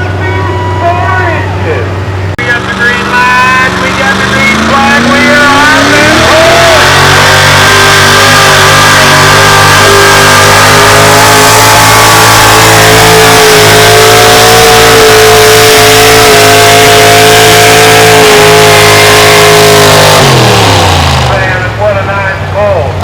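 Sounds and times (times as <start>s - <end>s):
vehicle engine at full throttle: 0.0s - 23.0s.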